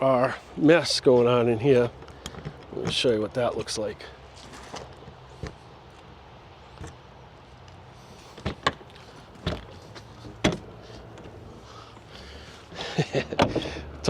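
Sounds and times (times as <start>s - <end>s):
rustling: 4.3s - 6.0s.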